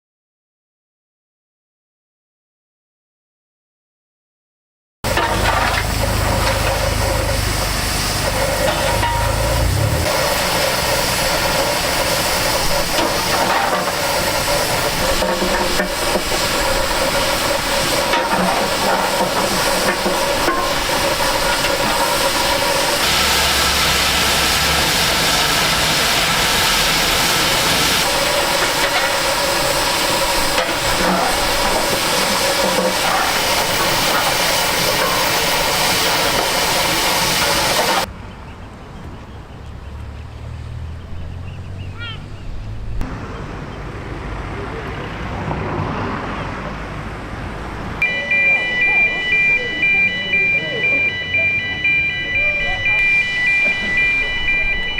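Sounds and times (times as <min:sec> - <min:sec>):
steam locomotive hissing: 0:05.1 - 0:38.1, 0:46.9 - 0:54.9.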